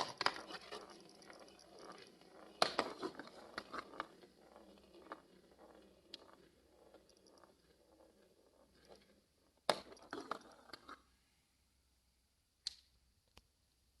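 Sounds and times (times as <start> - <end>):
marble clattering: 0.0 - 11.1
marbles rolling rattle: 0.0 - 11.1.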